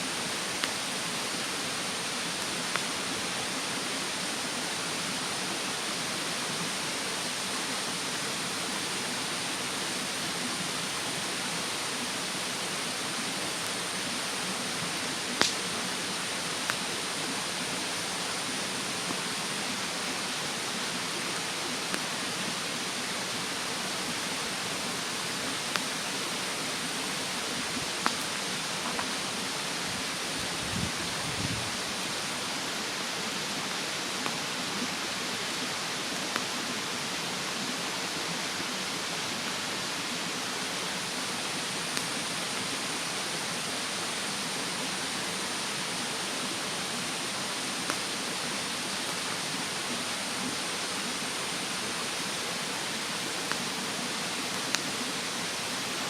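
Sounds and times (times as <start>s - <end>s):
mountain stream rushing: 0.0s - 56.0s
bonfire crackling and popping: 0.3s - 1.4s, 2.3s - 3.4s, 14.8s - 17.0s, 23.8s - 29.4s, 54.5s - 55.6s.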